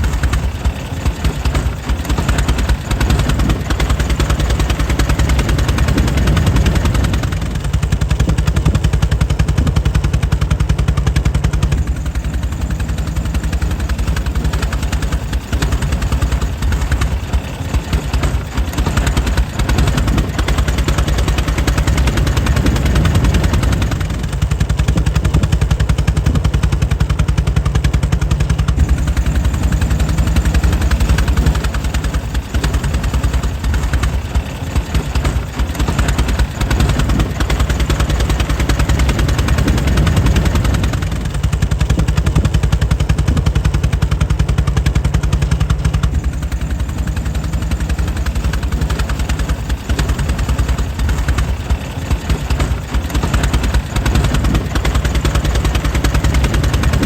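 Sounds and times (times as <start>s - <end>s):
air-cooled car engine running: 0.0s - 57.0s.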